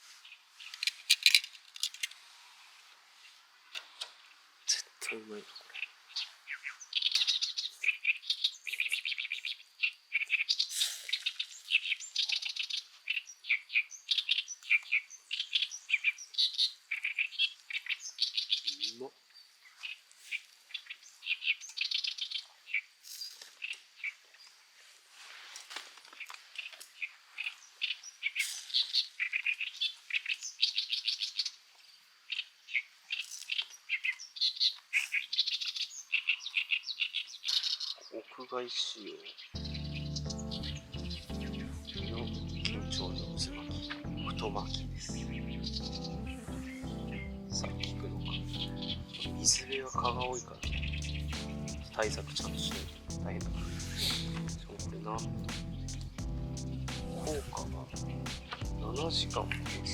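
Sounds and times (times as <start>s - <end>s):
birds chirping: 4.6s - 22.9s, 32.4s - 59.9s.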